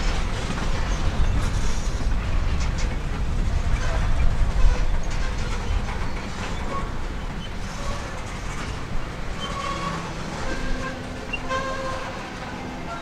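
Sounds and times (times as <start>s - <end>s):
freight car wheels rumbling: 0.0s - 13.0s
faint wheel squeals: 9.3s - 13.0s.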